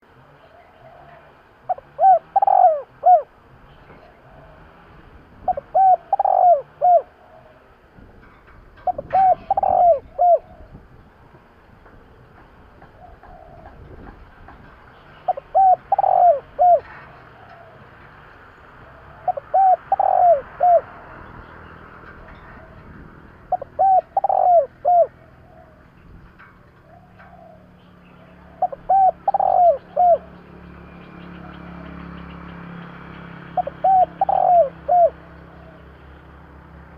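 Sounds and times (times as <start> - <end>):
dove cooing: 0.4 - 7.8, 8.8 - 10.9, 12.8 - 14.2, 15.2 - 18.0, 18.8 - 21.4, 22.1 - 32.1, 33.4 - 36.0.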